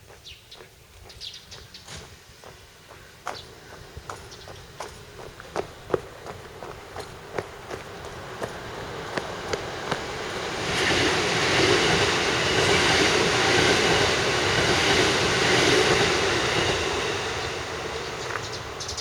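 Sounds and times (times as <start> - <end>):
electric train passing: 3.5 - 19.0.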